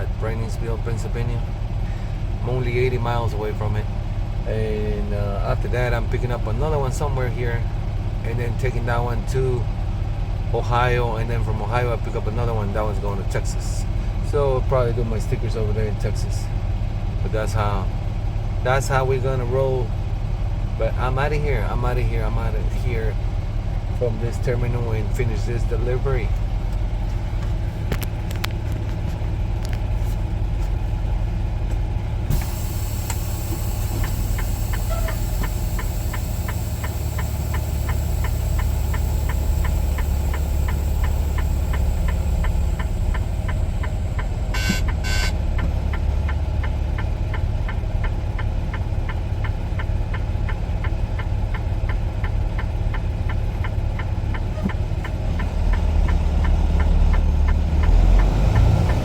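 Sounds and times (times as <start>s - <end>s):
diesel truck engine humming: 0.0s - 59.0s
fast even ticking: 34.0s - 47.4s
short high-pitched bursts: 44.6s - 45.4s.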